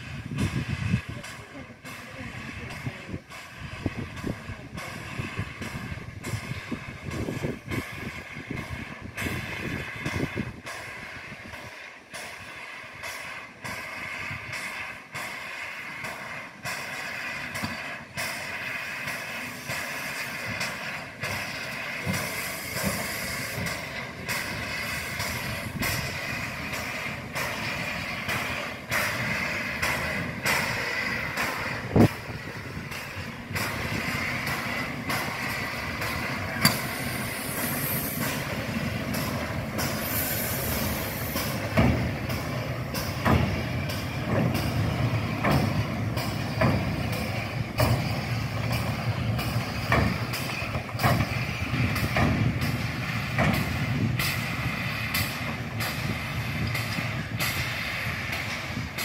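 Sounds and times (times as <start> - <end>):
steam hiss: 0.0 - 59.0
steam locomotive exhaust beats: 0.0 - 59.0
clanking: 16.1 - 57.7.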